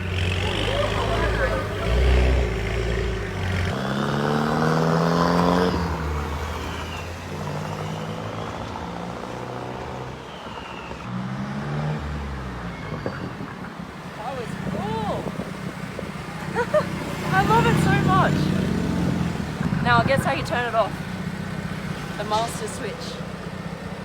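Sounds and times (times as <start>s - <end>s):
turbocharged engine accelerating: 0.0s - 24.0s
faint high turbo whistle: 10.1s - 11.1s.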